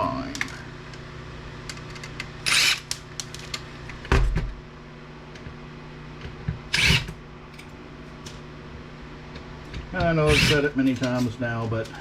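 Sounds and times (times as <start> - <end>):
steady low hum: 0.0 - 12.0
short harsh rasp: 10.3 - 10.6.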